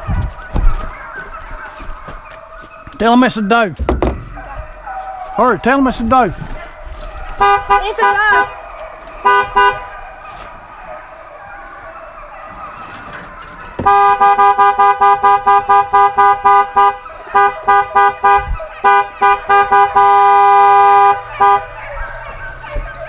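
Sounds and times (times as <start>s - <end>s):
truck horn toots: 7.4s - 8.6s, 9.2s - 9.9s, 13.8s - 21.8s.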